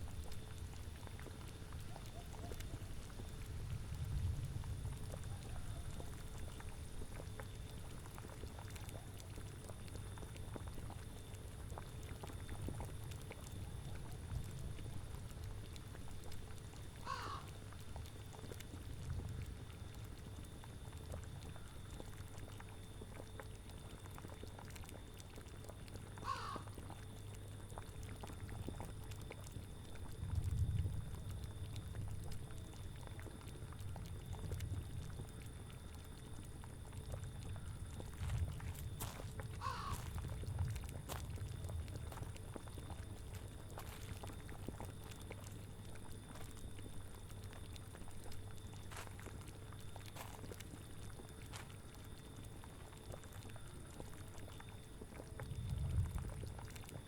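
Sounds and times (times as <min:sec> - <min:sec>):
liquid boiling and bubbling: 0:00.0 - 0:57.0
animal call: 0:01.9 - 0:02.9, 0:05.2 - 0:06.2, 0:17.0 - 0:17.6, 0:26.2 - 0:26.7, 0:39.6 - 0:40.1.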